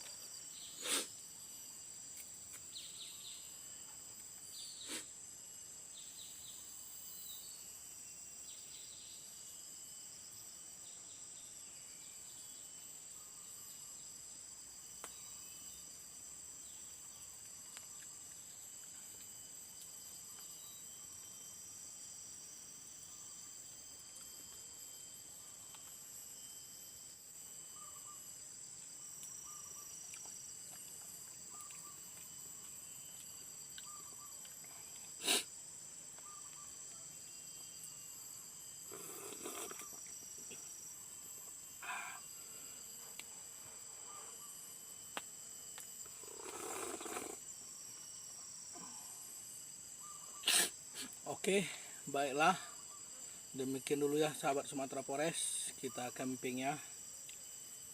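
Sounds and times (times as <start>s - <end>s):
high-pitched insect trills: 0.0s - 57.9s.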